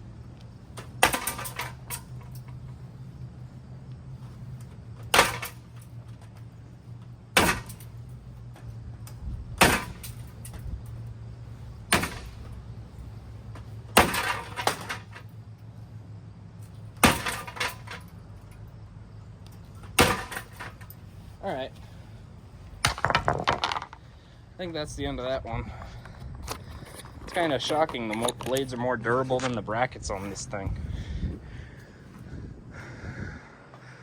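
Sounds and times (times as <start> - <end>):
ceiling fan being smashed: 0.8 - 2.4, 5.0 - 5.8, 7.3 - 8.0, 9.6 - 10.7, 11.9 - 12.5, 13.9 - 15.3, 17.0 - 18.0, 19.9 - 20.9.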